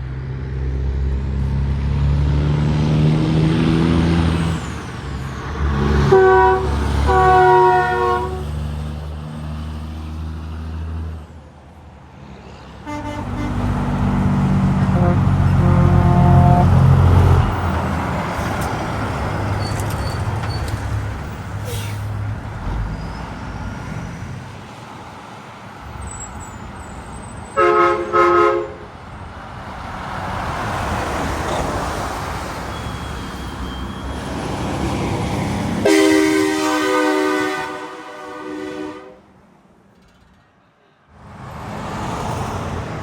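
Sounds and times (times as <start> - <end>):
highway traffic passing: 0.0 - 43.0
multi-tone horn blast: 5.8 - 8.6, 12.8 - 17.6, 27.6 - 28.9, 35.8 - 39.3
vehicle air horn blasts: 6.0 - 8.5, 12.8 - 13.7, 14.8 - 16.9, 27.6 - 28.9, 35.8 - 39.2.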